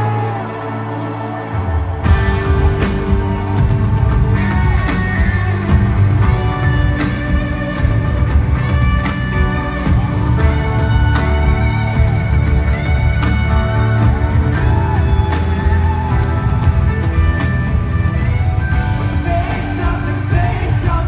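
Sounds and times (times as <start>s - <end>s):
heavy bass: 0.0s - 21.0s
steady drum beat: 1.5s - 21.0s.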